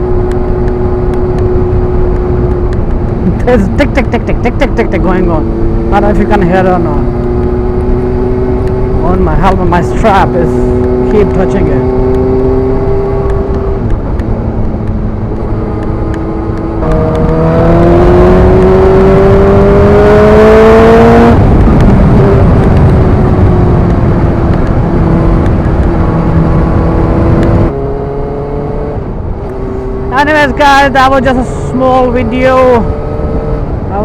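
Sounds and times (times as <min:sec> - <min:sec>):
motorcycle engine accelerating: 0:00.0 - 0:34.0
wind rush: 0:00.0 - 0:34.0.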